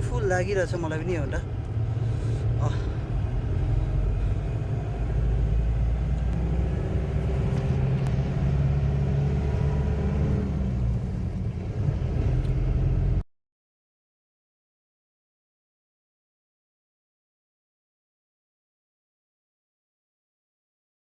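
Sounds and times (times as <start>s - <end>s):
vehicle engine and road noise: 0.0s - 13.2s.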